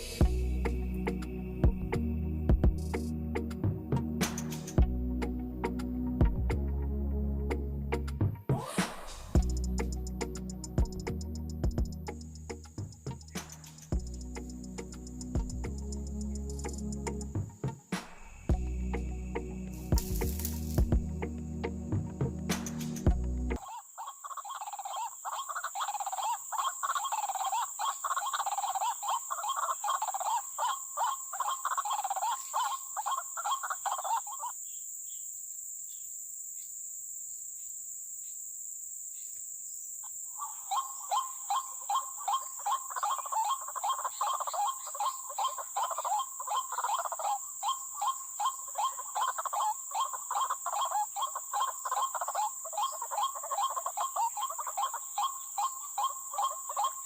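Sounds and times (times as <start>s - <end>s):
high insect whine: 0.0s - 4.9s, 8.5s - 57.0s
bird croaking calls: 22.5s - 34.8s, 40.0s - 57.0s.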